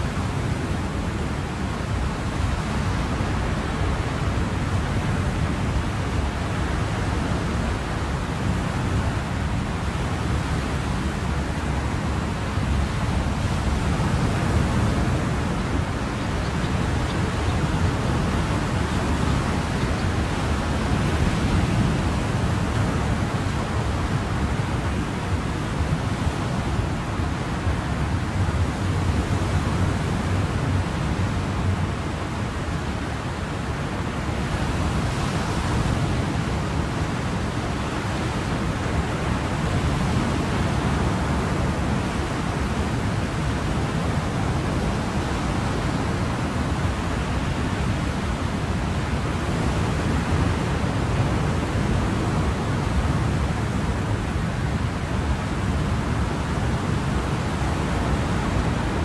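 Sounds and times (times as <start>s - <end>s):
ocean waves washing: 6.2s - 59.0s.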